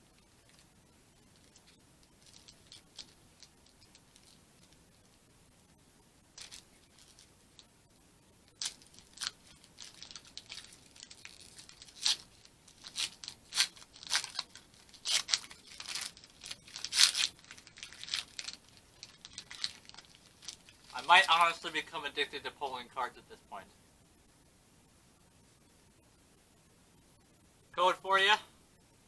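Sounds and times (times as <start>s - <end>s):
foil wrapper crinkling and tearing: 1.4s - 4.8s, 8.5s - 21.3s.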